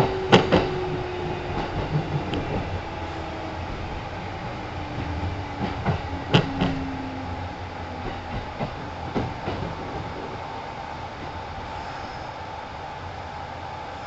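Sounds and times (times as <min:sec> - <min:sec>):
wheels clacking over rail joints: 0:00.0 - 0:10.6
train rumbling: 0:00.0 - 0:14.0.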